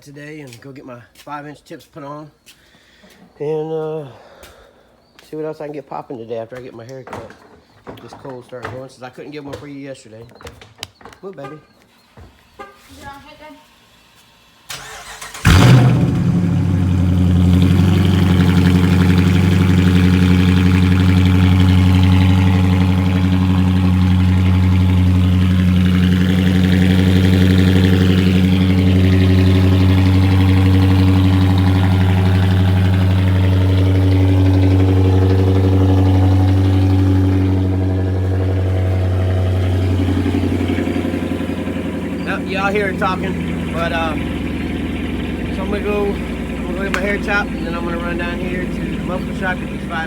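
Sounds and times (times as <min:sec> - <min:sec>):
car engine starting and idling: 0:13.8 - 0:50.0.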